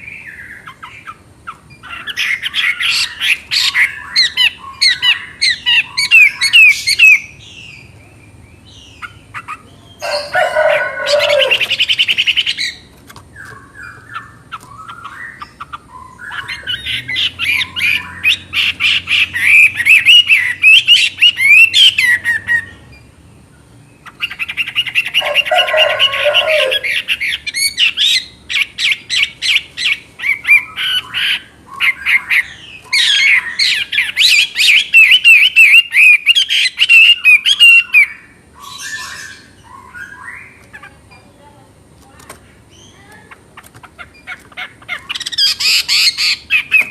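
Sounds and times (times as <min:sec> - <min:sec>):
lower bird call: 0:09.6 - 0:12.3, 0:24.7 - 0:28.0.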